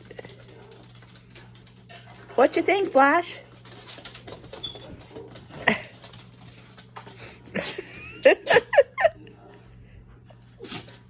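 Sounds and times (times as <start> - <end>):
dog sneezing: 10.6 - 11.0.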